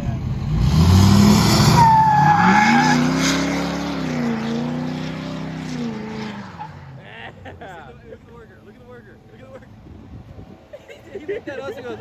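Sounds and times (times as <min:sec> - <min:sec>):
engine revving hard: 0:00.3 - 0:06.6
tires squealing: 0:00.4 - 0:07.1.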